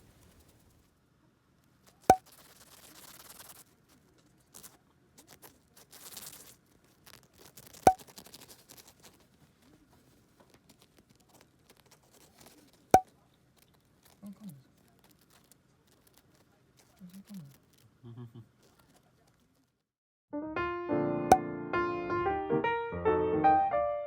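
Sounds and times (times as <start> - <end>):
hamster scratching on fabric: 0.0 - 1.0, 1.6 - 19.8.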